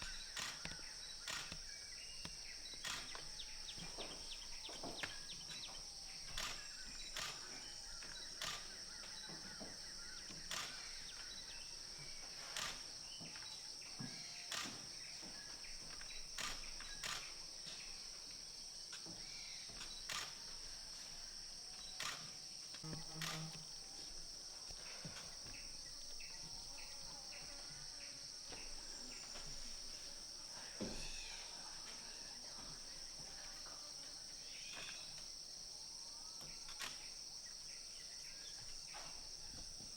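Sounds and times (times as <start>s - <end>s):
bird chirps: 0.0s - 17.4s
insects droning: 0.0s - 39.9s
sharp clicks: 0.3s - 3.3s, 6.3s - 7.4s.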